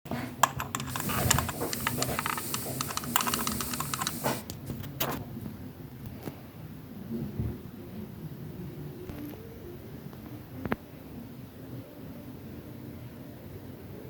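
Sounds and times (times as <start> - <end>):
keyboard typing clicks: 0.4 - 4.4
louder clicks: 0.4 - 4.5.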